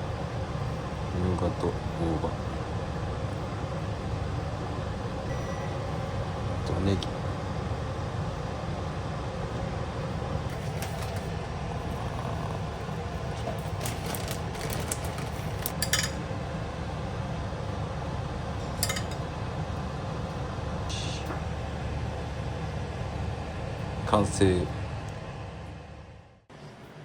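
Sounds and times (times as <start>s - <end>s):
utensils and dishes clinking: 13.4s - 16.2s, 18.6s - 19.3s.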